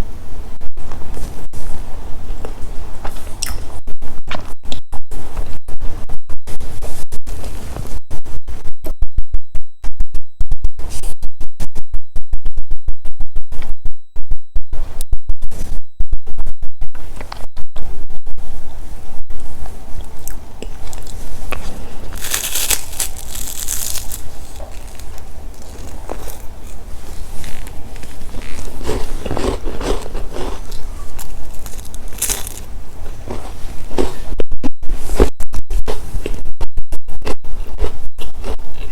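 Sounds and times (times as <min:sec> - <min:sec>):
distorted microphone crackling: 0:00.0 - 0:20.2, 0:20.8 - 0:38.9
steady low hum: 0:00.0 - 0:38.9
crunchy snack chewing: 0:20.1 - 0:34.3, 0:37.2 - 0:38.9.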